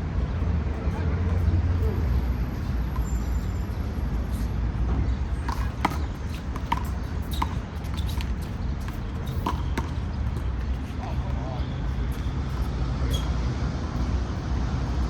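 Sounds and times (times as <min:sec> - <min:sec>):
city traffic rumble: 0:00.0 - 0:15.0
short sharp taps and squeaks: 0:05.5 - 0:09.6.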